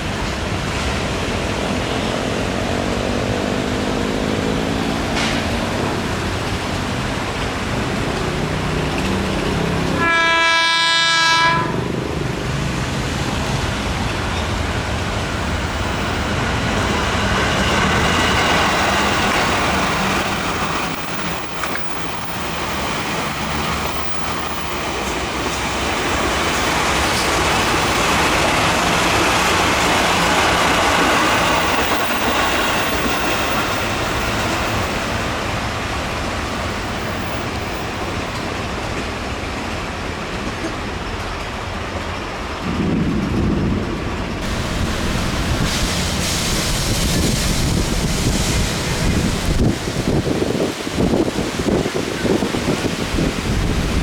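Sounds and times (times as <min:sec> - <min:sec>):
train rumbling past: 0:00.0 - 0:54.0
train horn blast: 0:09.6 - 0:12.1.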